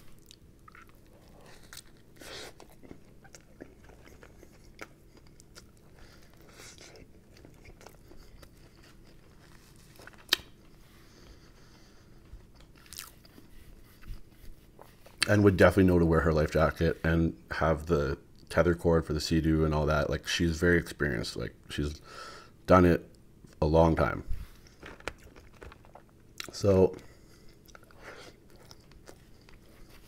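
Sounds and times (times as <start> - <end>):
soft crunches and smacks: 0.0 - 10.8
person chewing food: 0.0 - 15.3, 24.4 - 30.0.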